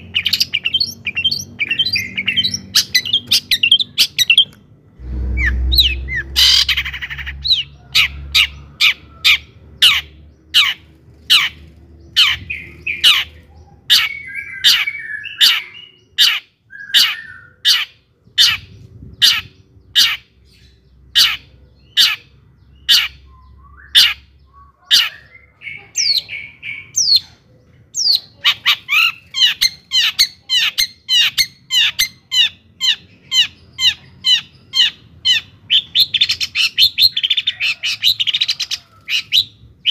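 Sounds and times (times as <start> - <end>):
harsh raspy bird notes: 0.0 - 11.6
bird singing sharp notes: 0.1 - 8.6.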